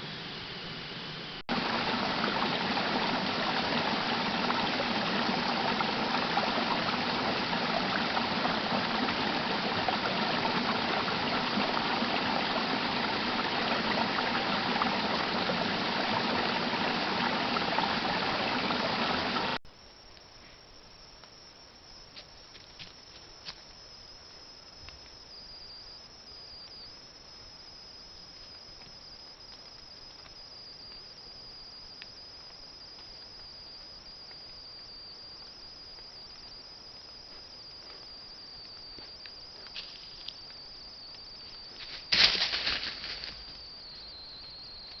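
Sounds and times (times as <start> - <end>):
crickets trilling: 0.0 - 45.0
loud rustle near microphone: 41.8 - 43.4.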